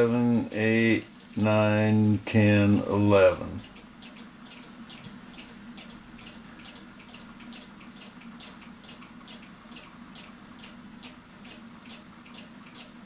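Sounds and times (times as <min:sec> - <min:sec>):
low steady hum: 0:00.0 - 0:04.0
clock ticking: 0:00.0 - 0:13.0.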